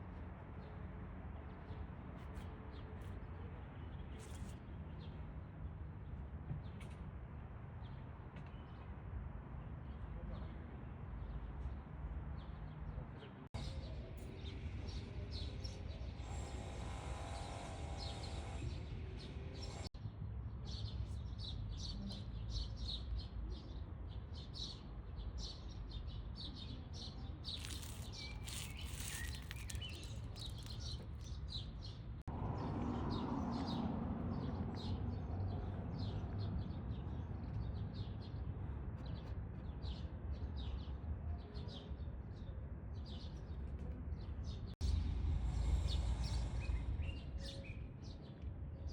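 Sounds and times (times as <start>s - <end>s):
small birds chirping: 20.7s - 32.3s, 41.6s - 48.9s
low outdoor rumble: 44.8s - 47.6s.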